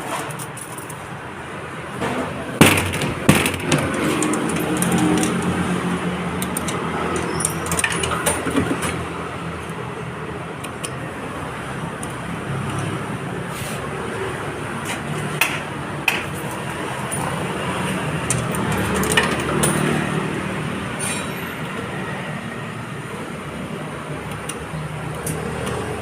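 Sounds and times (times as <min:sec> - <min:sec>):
sharp clinks and knocks: 0:02.6 - 0:05.6, 0:06.4 - 0:08.9.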